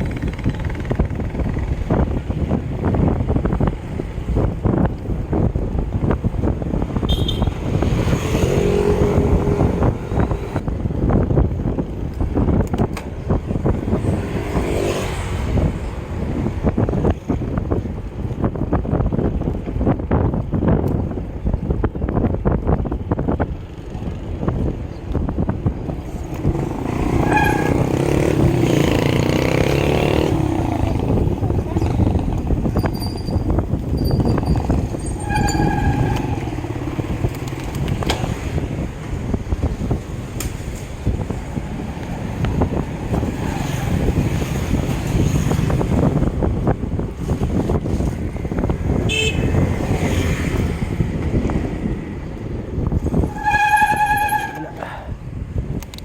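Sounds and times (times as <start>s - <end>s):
wind buffeting microphone: 0.0s - 56.0s
motor vehicle passing: 7.6s - 10.6s, 26.0s - 55.1s.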